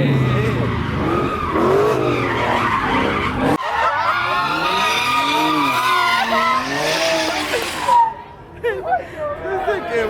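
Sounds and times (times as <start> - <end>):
tires squealing: 0.0 - 8.4
car engine rumble: 0.0 - 8.7.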